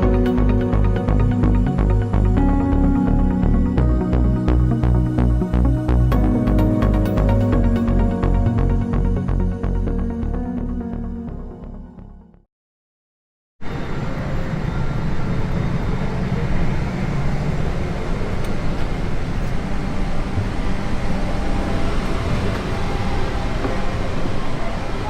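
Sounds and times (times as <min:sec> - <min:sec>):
low vehicle rumble: 0:00.0 - 0:11.6.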